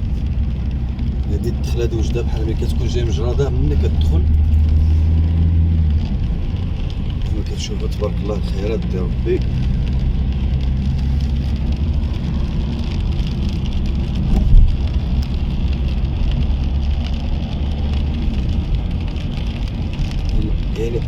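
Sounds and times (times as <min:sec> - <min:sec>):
engine and tyre rumble: 0:00.0 - 0:21.0
rain and spray hiss: 0:00.0 - 0:21.0
short low thump: 0:14.2 - 0:14.9.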